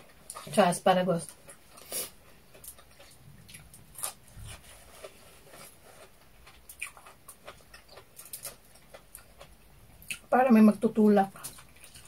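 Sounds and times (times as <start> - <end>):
chewing: 0.0 - 10.3, 11.2 - 12.0.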